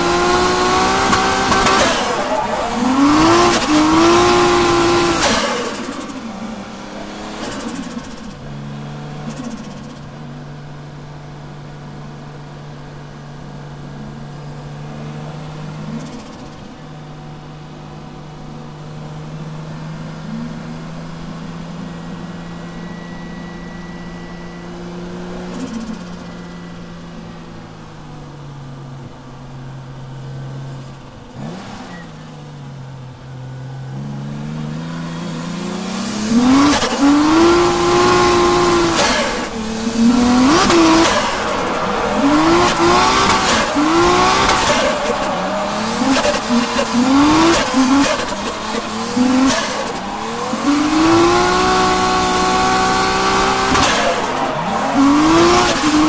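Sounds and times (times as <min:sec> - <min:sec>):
tyre squeal: 0:00.0 - 0:06.2, 0:36.1 - 0:56.0
car engine revving: 0:00.0 - 0:18.3, 0:30.8 - 0:32.4, 0:33.4 - 0:56.0.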